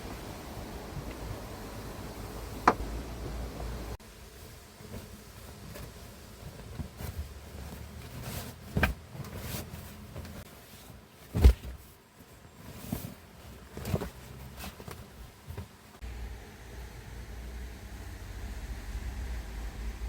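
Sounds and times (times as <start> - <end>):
knocks and clunks: 2.5 - 4.0.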